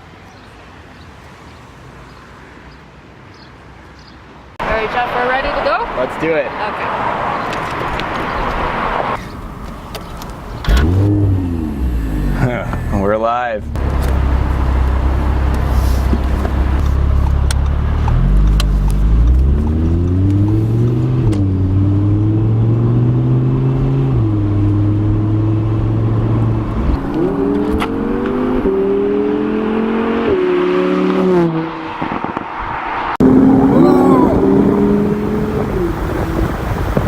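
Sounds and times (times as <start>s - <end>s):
car engine accelerating through gears: 10.6s - 37.0s.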